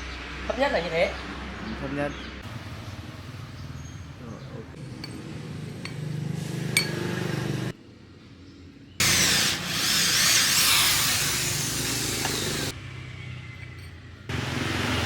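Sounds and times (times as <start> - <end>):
power tool running: 9.0 - 12.7.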